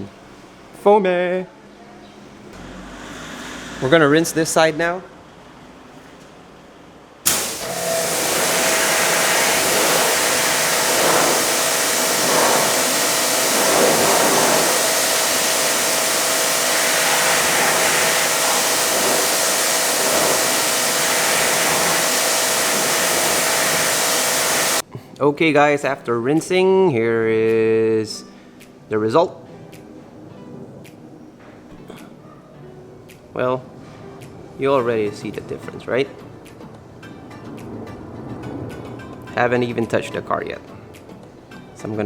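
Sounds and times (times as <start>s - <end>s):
pump motor whine: 2.6s - 4.0s, 7.3s - 24.8s
pressure washer water jet hissing: 7.3s - 24.8s.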